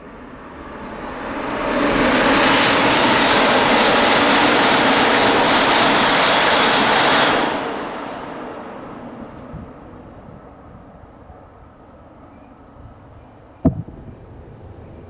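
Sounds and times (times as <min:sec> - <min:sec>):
high-speed train passing: 0:00.0 - 0:15.0
wind buffeting microphone: 0:09.4 - 0:15.0.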